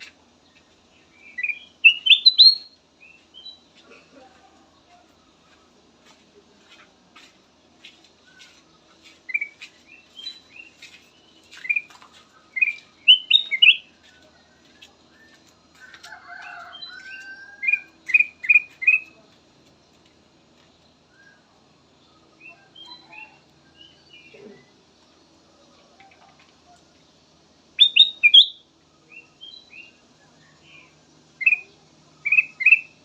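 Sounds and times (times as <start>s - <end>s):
bird chirping whistles: 1.3s - 2.8s, 27.8s - 28.6s.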